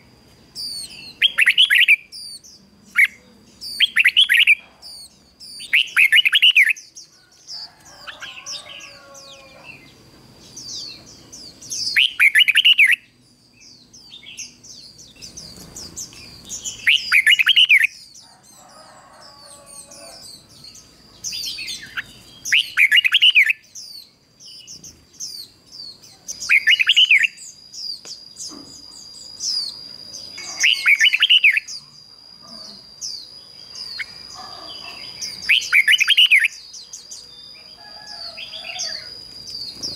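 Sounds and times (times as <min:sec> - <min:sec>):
high bird chirps: 0:00.6 - 0:09.9, 0:10.5 - 0:39.9
thin steady high tone: 0:23.2 - 0:39.9.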